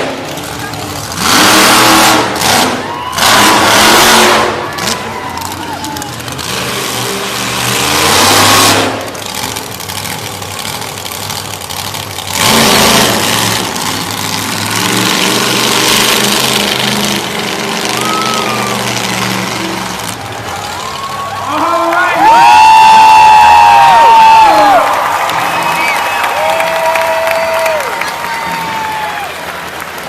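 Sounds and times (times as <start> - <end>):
engine throttle bursts: 0.0 - 30.0
monster truck engine running: 0.0 - 30.0.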